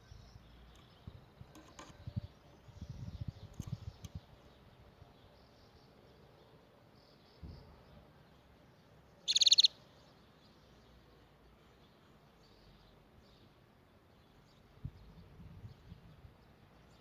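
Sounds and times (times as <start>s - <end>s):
faint bird chirps: 0.0s - 17.0s
canary trilling: 9.3s - 9.8s.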